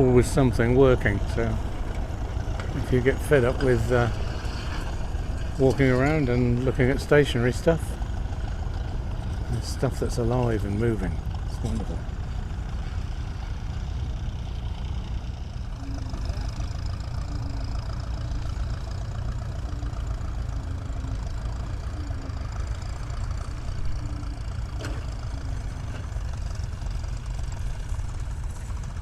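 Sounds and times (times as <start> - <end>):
tractor engine rumbling: 0.0 - 29.0.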